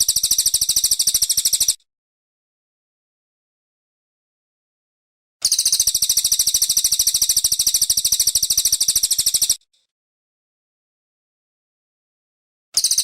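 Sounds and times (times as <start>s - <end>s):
songbird high-pitched trill: 0.0s - 1.8s, 5.4s - 9.6s, 12.8s - 13.0s.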